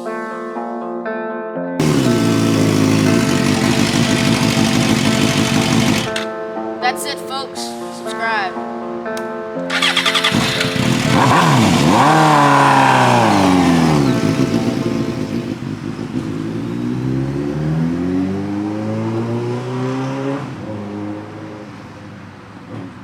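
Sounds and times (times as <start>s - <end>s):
motorcycle engine revving: 1.8s - 6.3s, 9.7s - 21.1s.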